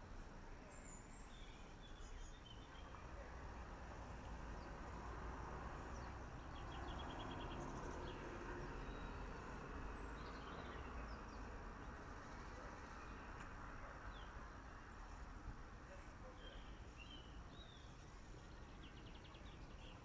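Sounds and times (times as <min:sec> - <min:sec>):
birds chirping faintly: 0:00.0 - 0:20.0
low background noise: 0:00.0 - 0:20.0.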